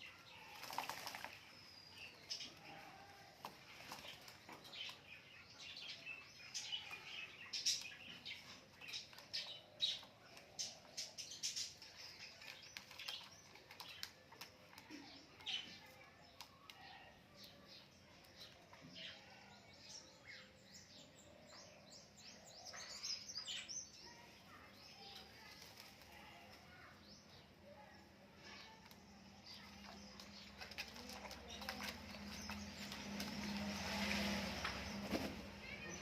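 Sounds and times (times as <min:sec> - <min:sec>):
birds chirping: 0:00.0 - 0:36.0
wing flaps: 0:32.4 - 0:35.6.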